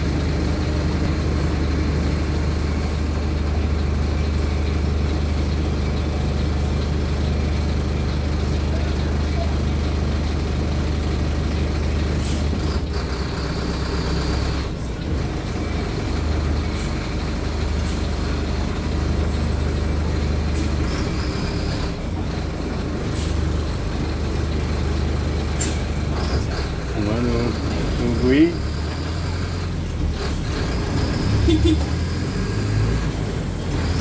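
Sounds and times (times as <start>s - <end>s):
bus diesel engine humming: 0.0s - 34.0s.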